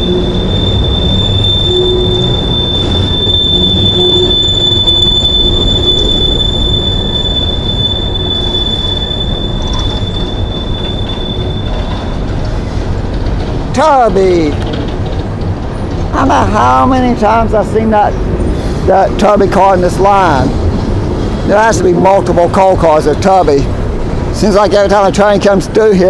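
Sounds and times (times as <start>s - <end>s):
high-pitched wheel squeal: 0.0s - 12.8s
train wheels rumbling on rails: 0.0s - 26.0s.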